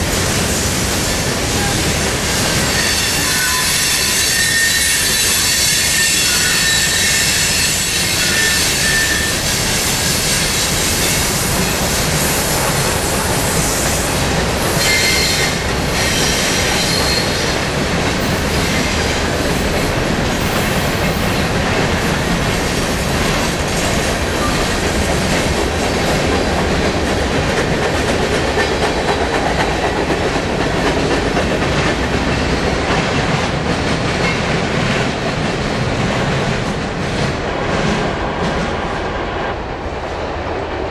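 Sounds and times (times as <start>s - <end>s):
high wheel squeals: 2.6s - 9.4s.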